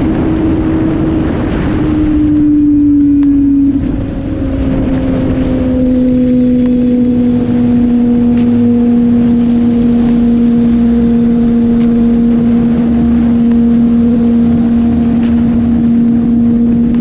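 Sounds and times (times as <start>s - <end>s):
motorcycle engine cruising: 0.0s - 17.0s
wind rushing across microphone: 0.0s - 17.0s.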